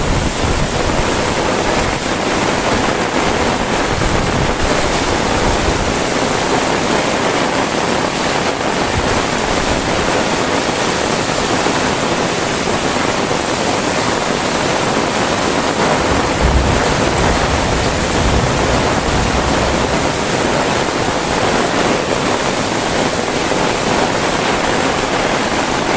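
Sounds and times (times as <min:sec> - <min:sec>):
heavy rain falling: 0:00.0 - 0:25.9
short low rumble: 0:15.8 - 0:21.3.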